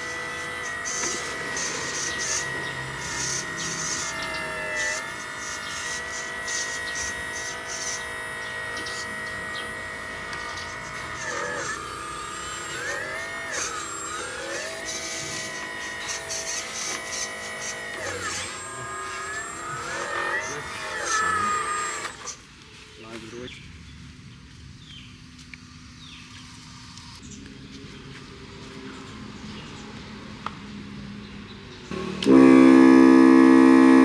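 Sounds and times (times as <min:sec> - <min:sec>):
electric motor and gearbox whining: 0:00.0 - 0:23.4, 0:31.8 - 0:34.0.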